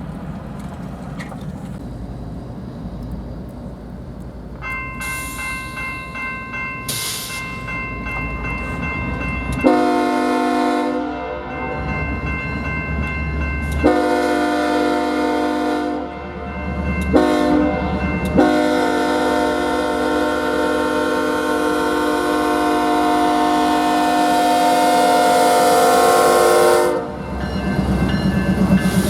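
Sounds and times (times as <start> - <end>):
diesel engines rumbling: 0.0 - 29.0
crossing bell ringing: 4.2 - 29.0
locomotive air horn blasts: 9.6 - 11.5, 13.8 - 16.4, 17.1 - 27.2.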